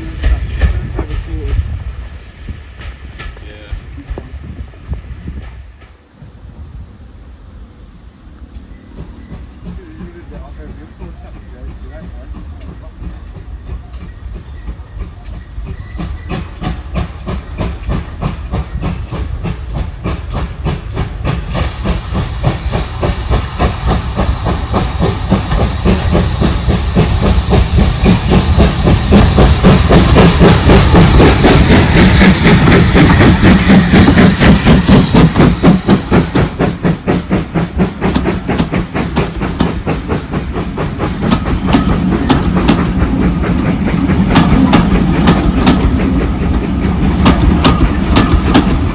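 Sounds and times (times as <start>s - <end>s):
hiss of steam: 0.0s - 48.9s
steam locomotive beats: 0.0s - 48.9s.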